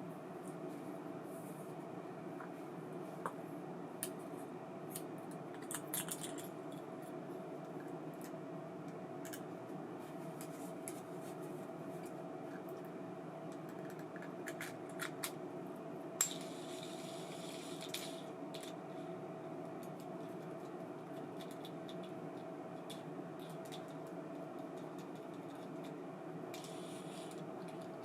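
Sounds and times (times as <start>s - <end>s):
steady hum: 0.0s - 28.0s
small metal parts clicking: 5.6s - 6.5s.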